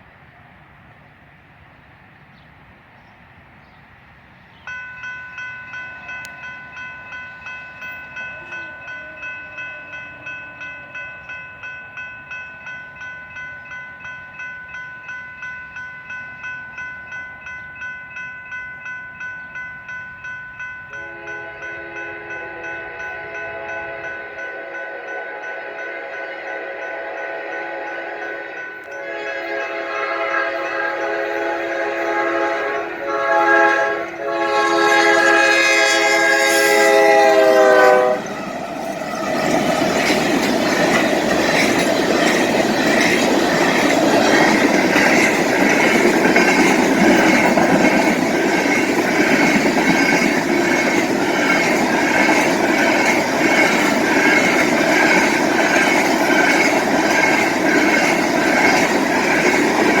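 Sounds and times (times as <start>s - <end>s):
locomotive air horn chord: 20.9s - 38.5s
train wheel clatter: 36.0s - 60.0s.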